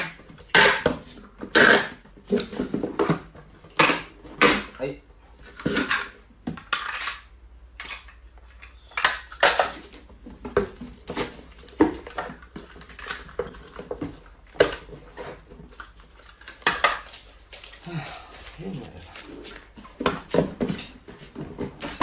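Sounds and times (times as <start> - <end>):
hard objects clattering: 5.4 - 22.0.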